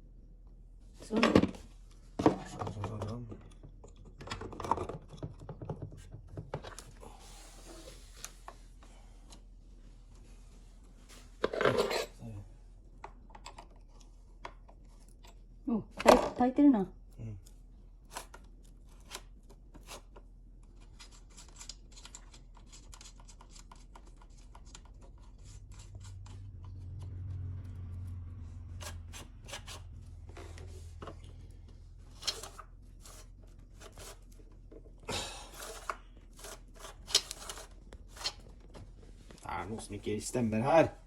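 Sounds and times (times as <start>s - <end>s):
low hum: 25.1s - 33.8s.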